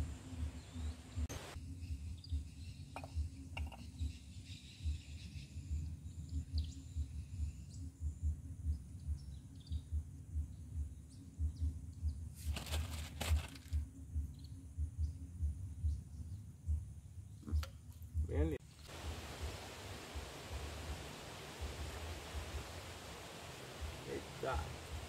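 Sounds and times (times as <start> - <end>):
faint bird chirps: 0.2 - 12.4, 13.9 - 17.7
rustling: 12.4 - 13.8.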